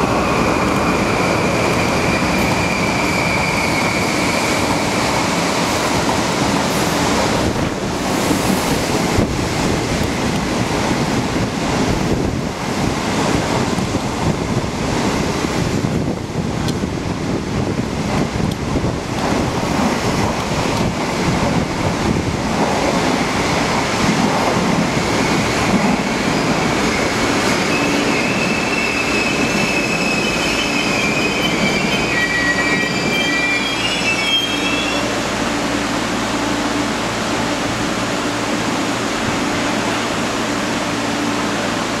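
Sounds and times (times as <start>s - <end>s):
electric train humming: 0.0s - 42.0s
train coaches rolling past: 0.0s - 42.0s
train wheels squealing: 1.0s - 5.3s, 25.2s - 35.2s.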